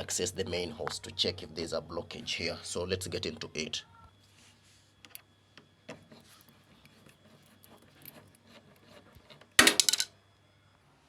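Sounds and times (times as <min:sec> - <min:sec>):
faint steady hum: 0:00.0 - 0:11.0
loud rattling clatter of clicks: 0:09.6 - 0:10.1.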